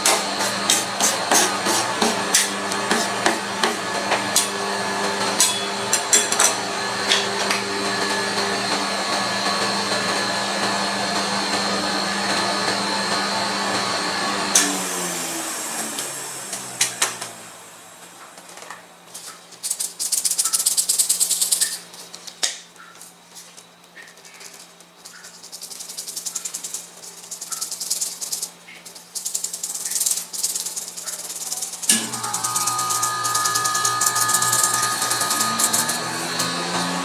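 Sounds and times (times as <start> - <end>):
metal spatulas scraping cold plate: 0.0 - 4.5
motor running down: 0.0 - 18.2, 31.3 - 37.0
motor starting up: 6.6 - 18.1, 31.0 - 37.0.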